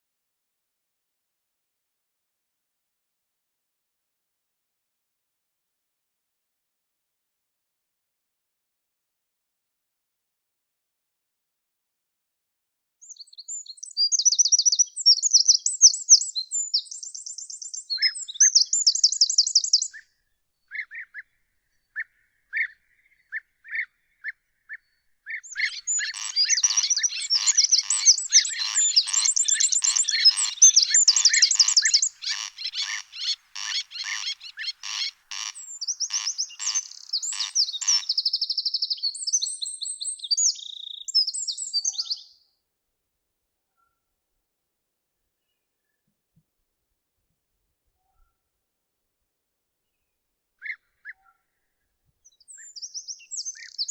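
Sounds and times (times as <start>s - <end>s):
songbird trilling and chirping: 13.1s - 20.0s, 24.7s - 42.2s, 52.4s - 53.9s.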